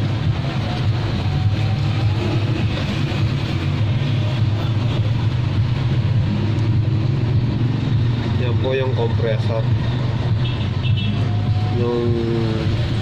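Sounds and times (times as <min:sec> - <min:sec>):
noisy rush: 0:00.0 - 0:13.0.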